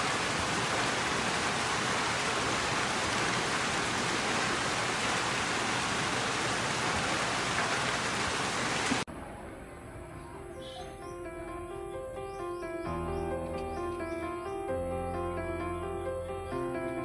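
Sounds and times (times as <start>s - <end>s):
steady rain falling: 0.0s - 9.1s.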